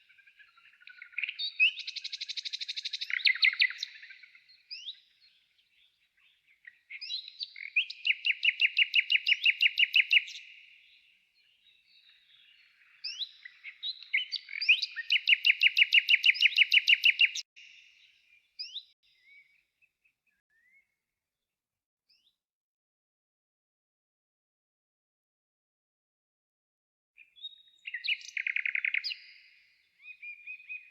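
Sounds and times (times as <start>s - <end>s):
songbird singing: 0.0s - 21.0s, 27.2s - 30.9s.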